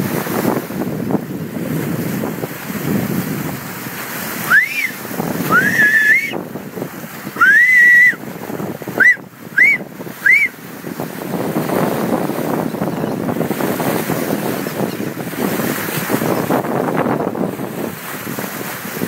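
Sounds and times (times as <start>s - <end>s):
water rushing past hull: 0.0s - 19.0s
wind on microphone: 0.0s - 19.0s
dolphins whistling: 4.4s - 6.4s, 7.4s - 8.2s, 9.0s - 10.6s.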